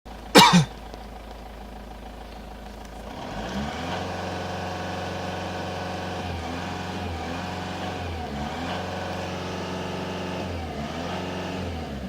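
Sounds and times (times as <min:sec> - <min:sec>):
diesel engine running: 0:00.1 - 0:12.0
sharp clunk: 0:00.4 - 0:00.7.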